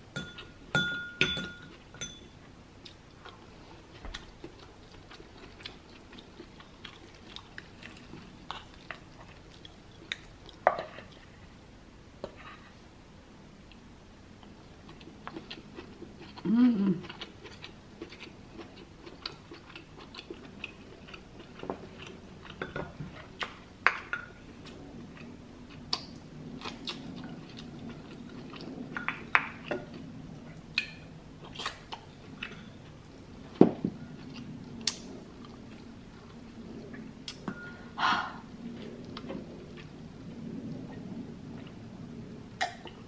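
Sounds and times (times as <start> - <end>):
close chewing with wet mouth sounds: 2.8 - 11.3, 13.7 - 37.6.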